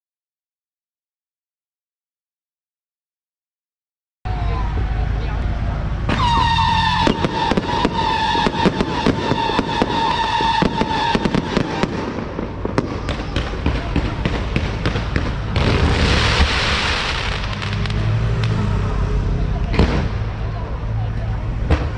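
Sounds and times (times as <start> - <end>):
fireworks cracking and popping: 6.0 - 18.7, 19.6 - 20.5
loud hissing rush: 6.7 - 18.9.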